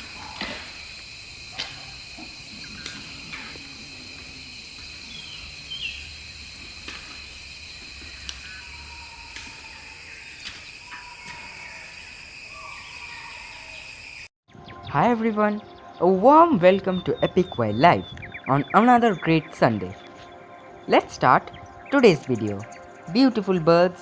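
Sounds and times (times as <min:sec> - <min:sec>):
high insect trilling: 0:00.0 - 0:14.3
faint bird chirps: 0:01.6 - 0:06.4, 0:08.0 - 0:23.3.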